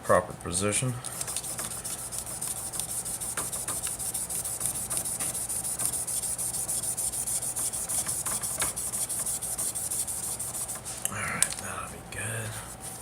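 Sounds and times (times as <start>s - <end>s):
sandpaper rubbing: 1.2s - 11.0s.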